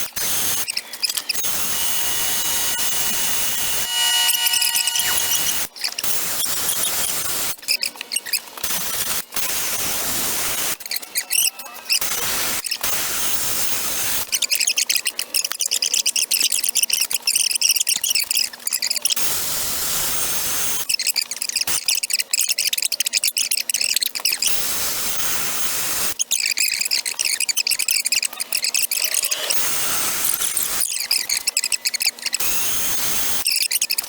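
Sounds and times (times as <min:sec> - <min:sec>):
rotary grinder cutting metal: 0:00.4 - 0:05.8, 0:26.8 - 0:33.1
rotary grinder running freely: 0:01.0 - 0:05.8, 0:28.1 - 0:31.3.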